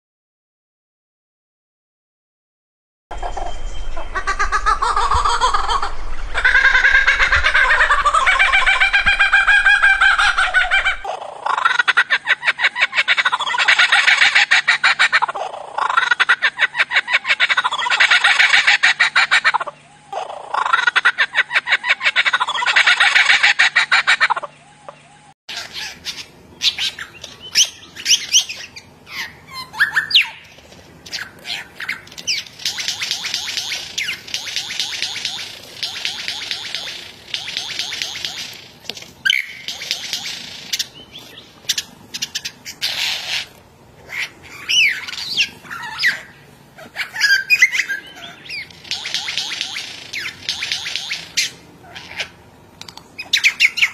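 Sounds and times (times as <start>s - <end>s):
bird pulsed laughing notes: 3.1s - 43.0s, 44.0s - 52.4s
sharp bird whistles: 39.2s - 39.8s.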